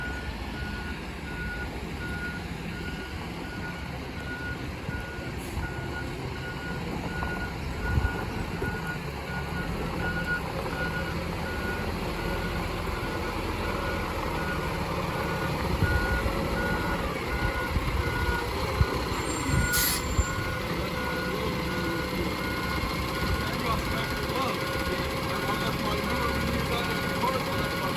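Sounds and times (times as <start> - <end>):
garbage truck engine running: 0.0 - 27.9
reversing alarm beeping: 0.0 - 27.9
short hiss: 19.7 - 20.2.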